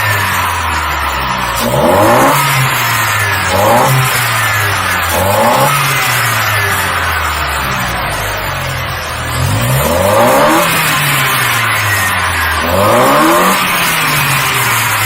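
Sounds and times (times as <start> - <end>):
car engine idling and revving: 0.0 - 15.0
loud intake hiss: 0.0 - 15.0.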